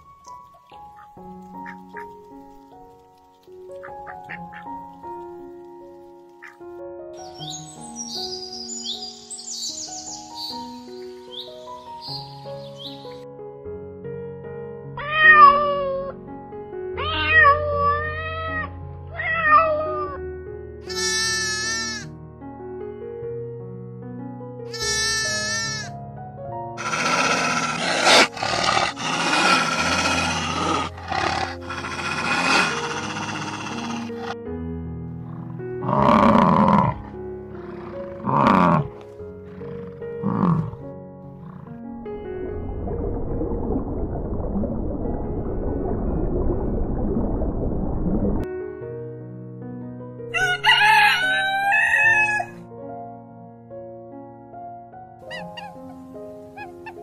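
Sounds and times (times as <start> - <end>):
background music: 0.0 - 47.4, 48.4 - 57.0
cat meowing: 15.0 - 16.1, 17.0 - 20.2, 24.8 - 25.9
bull bellowing: 26.8 - 34.4, 35.2 - 40.8.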